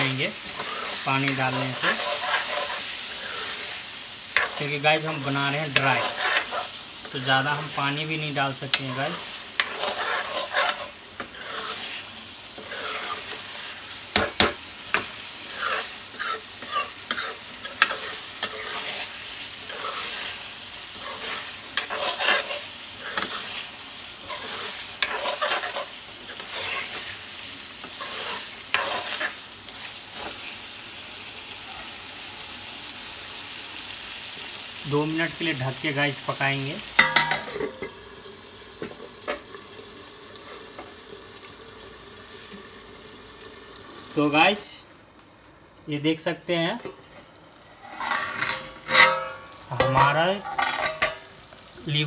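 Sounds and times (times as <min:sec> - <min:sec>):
spatula scraping pan: 0:00.0 - 0:30.5, 0:47.0 - 0:51.2
meat frying sizzle: 0:00.0 - 0:52.0.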